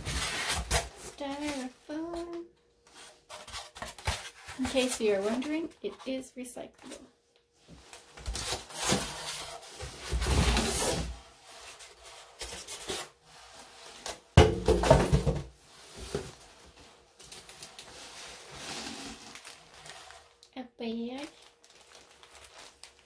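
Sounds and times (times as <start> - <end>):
styrofoam rubbing and scraping: 18.0 - 20.3.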